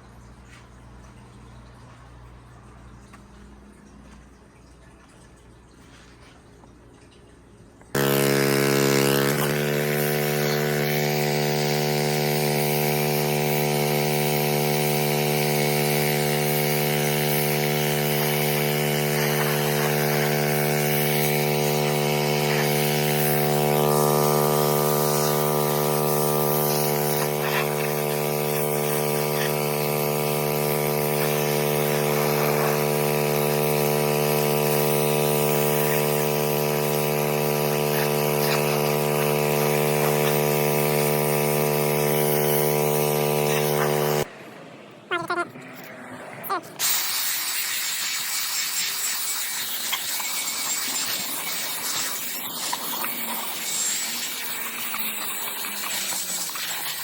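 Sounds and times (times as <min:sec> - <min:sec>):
machine motor running: 0:08.0 - 0:44.3.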